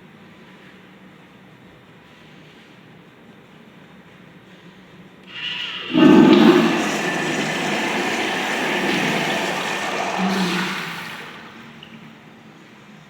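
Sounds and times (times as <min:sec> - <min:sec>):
urinal flushing: 0:05.3 - 0:12.7.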